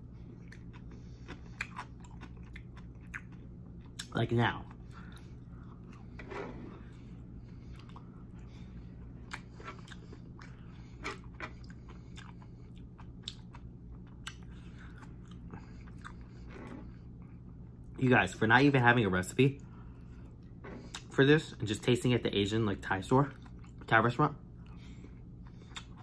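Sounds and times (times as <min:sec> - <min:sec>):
person chewing: 0:00.1 - 0:06.2, 0:07.1 - 0:17.7, 0:19.8 - 0:21.1, 0:24.6 - 0:26.0.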